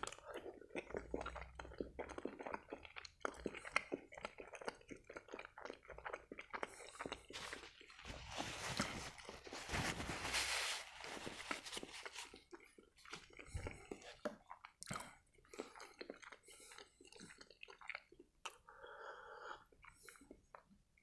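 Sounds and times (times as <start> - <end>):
soft wet chewing: 0.0 - 21.0
paper napkin rustling: 7.4 - 12.3.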